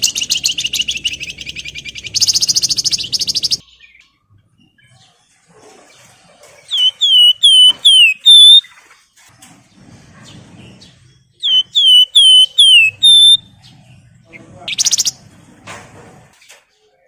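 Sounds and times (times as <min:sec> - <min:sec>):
bird singing whistled phrases: 0:00.0 - 0:04.0, 0:06.7 - 0:08.7, 0:11.4 - 0:13.5, 0:14.7 - 0:15.2.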